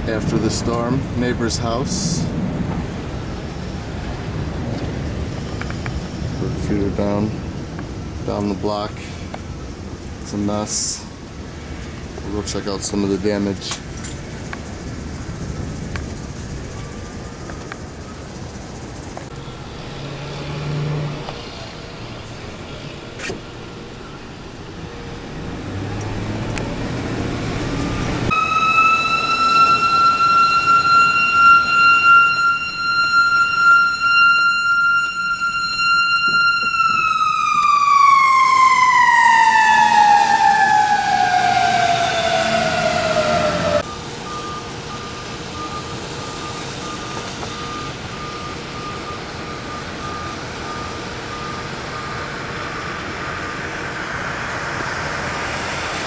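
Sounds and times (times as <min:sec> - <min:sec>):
mechanical siren wailing: 0:23.9 - 0:54.8.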